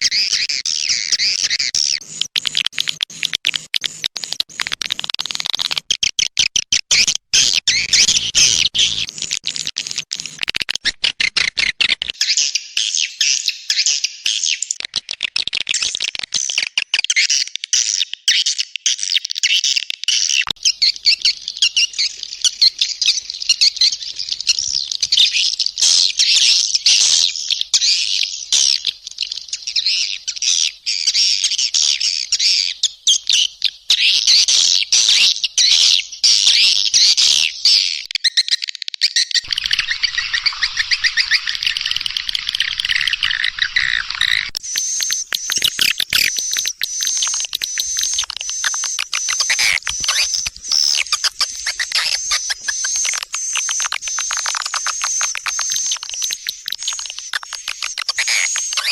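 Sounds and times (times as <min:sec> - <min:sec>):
bird trill: 0:00.0 - 0:02.5, 0:07.0 - 0:09.3, 0:20.3 - 0:34.4, 0:35.1 - 0:58.9
swiftlets chirping: 0:39.4 - 0:58.9.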